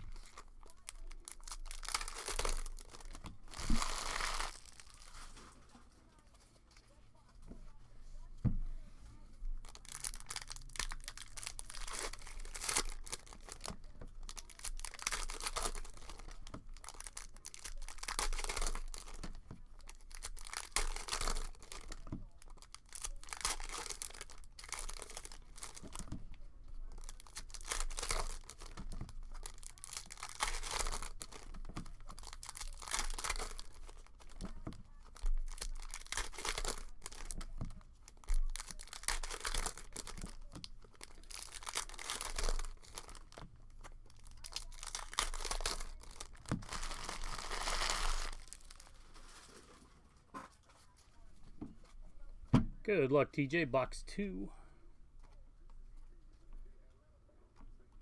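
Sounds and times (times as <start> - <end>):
foil wrappers tearing and crinkling: 0.0 - 5.6, 9.6 - 50.0.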